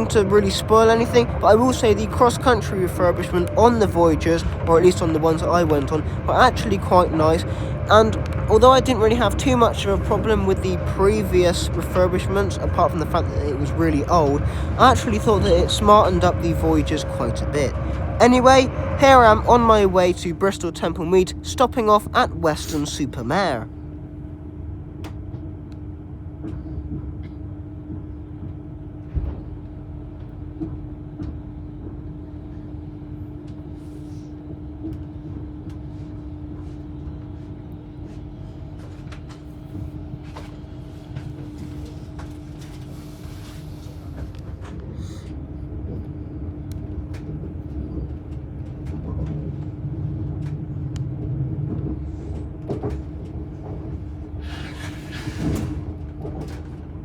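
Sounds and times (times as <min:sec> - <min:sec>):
train carriage hum: 0:00.0 - 0:57.0
train rumble: 0:00.0 - 0:57.0.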